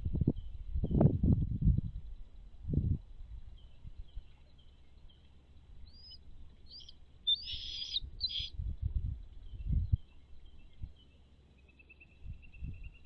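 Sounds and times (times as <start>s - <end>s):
bird chirping: 3.6s - 8.5s.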